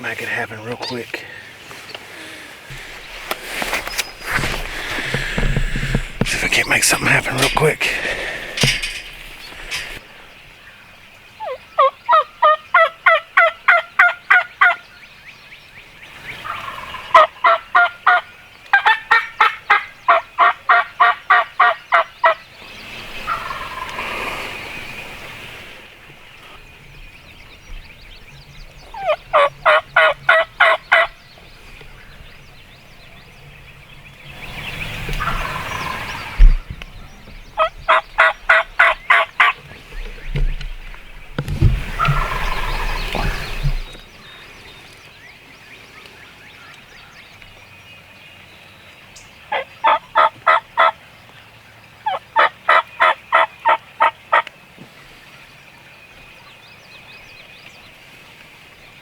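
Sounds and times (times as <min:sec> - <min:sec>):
turkey gobbling: 0:11.4 - 0:14.8, 0:16.4 - 0:22.4, 0:23.3 - 0:24.1, 0:29.0 - 0:31.1, 0:35.2 - 0:36.6, 0:37.6 - 0:39.6, 0:41.8 - 0:44.0, 0:49.5 - 0:51.0, 0:52.1 - 0:54.4.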